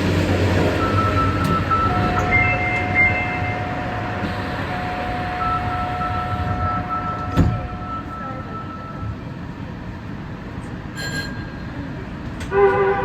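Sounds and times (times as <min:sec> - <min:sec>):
electric train rumble: 0:00.0 - 0:13.0
high-pitched tones: 0:00.5 - 0:09.3.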